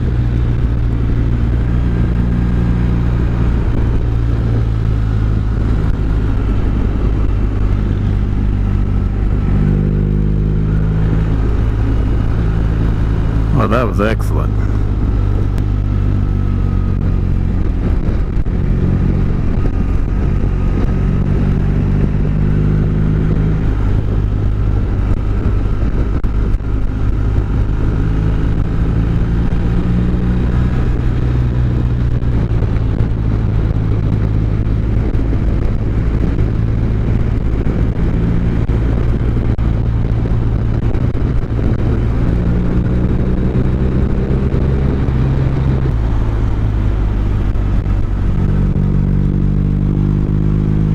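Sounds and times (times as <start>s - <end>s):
motorcycle engine running: 0.0s - 13.6s, 14.5s - 50.9s.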